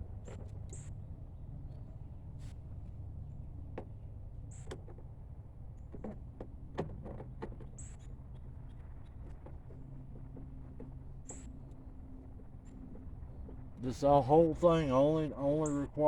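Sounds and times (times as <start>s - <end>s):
low hum: 8.0s - 16.0s.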